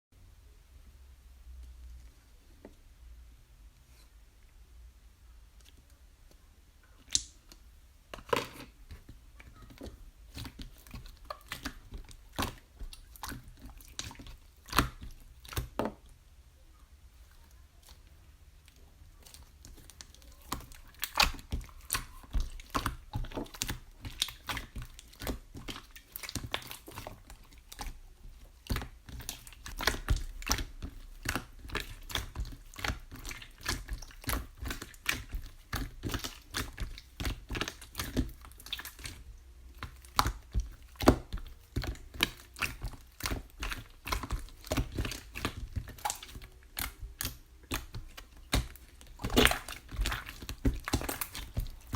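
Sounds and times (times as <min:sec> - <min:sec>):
crinkling: 0:17.2 - 0:51.9.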